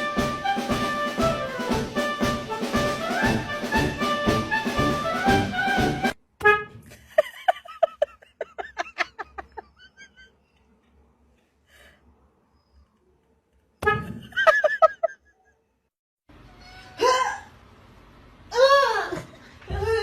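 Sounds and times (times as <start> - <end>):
jazzy brass music: 0.0 - 6.7.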